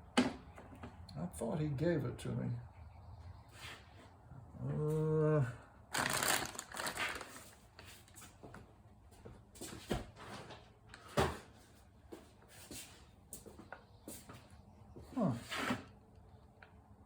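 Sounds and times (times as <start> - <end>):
rummaging through small parts: 5.9 - 8.2.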